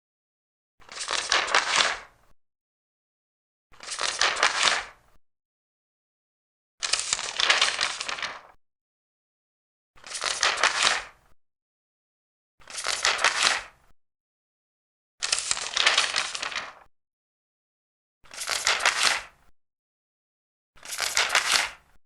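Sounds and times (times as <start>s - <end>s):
paper pages turning: 0.8s - 2.1s, 3.8s - 4.9s, 6.8s - 8.6s, 10.0s - 11.2s, 12.6s - 13.7s, 15.2s - 16.9s, 18.3s - 19.4s, 20.8s - 21.8s.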